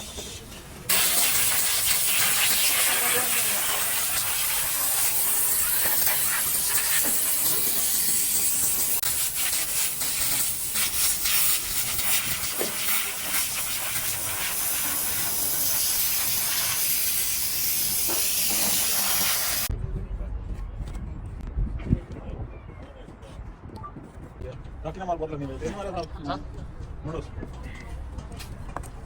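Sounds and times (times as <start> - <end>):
compressed air hissing: 0.0 - 19.7.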